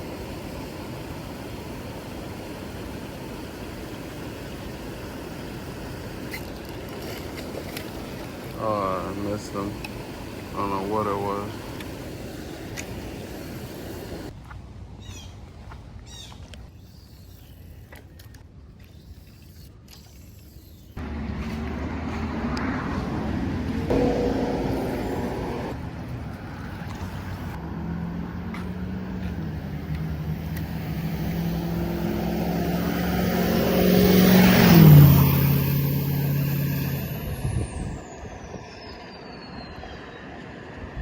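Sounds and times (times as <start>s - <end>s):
vehicle engine driving past: 21.0s - 38.0s.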